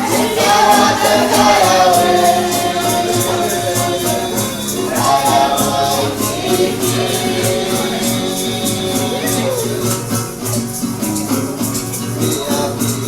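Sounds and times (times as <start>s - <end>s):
group singing a chant: 0.0s - 10.3s
shaken percussion beat: 0.0s - 13.0s.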